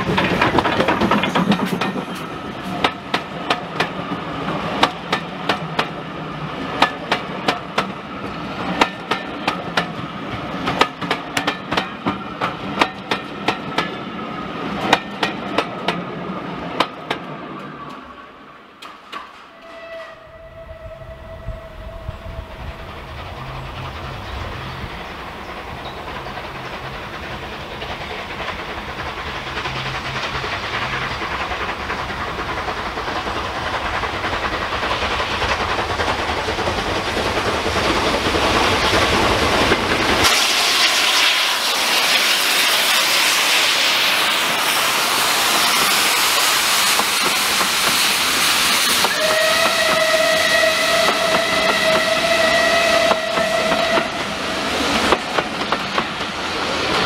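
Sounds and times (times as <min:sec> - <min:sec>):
wheels clicking over rail joints: 0:00.0 - 0:06.0, 0:10.6 - 0:14.0
steam locomotive working: 0:00.0 - 0:57.0.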